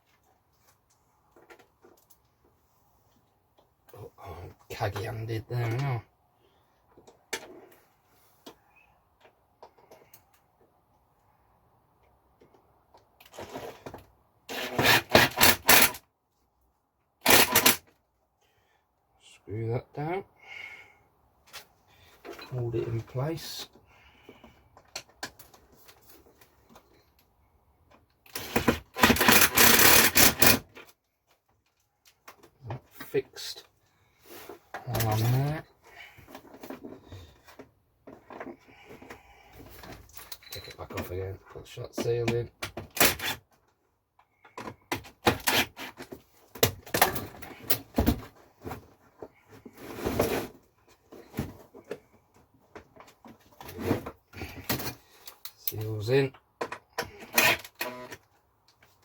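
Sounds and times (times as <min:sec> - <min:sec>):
plastic parts clicking and knocking: 0:17.2 - 0:18.0, 0:27.9 - 0:33.0
cordless screwdriver driving a screw: 0:17.3 - 0:17.8, 0:28.4 - 0:30.6, 0:57.2 - 0:58.1.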